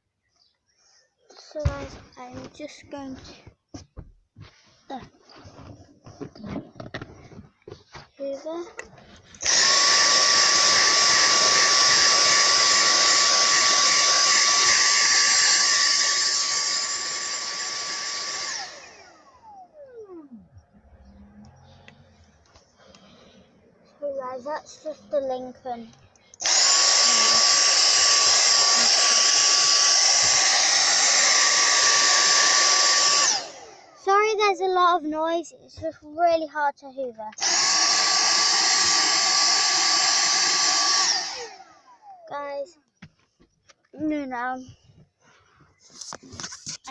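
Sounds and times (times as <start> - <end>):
vacuum cleaner running: 9.4 - 20.0, 26.4 - 34.0, 37.4 - 42.2.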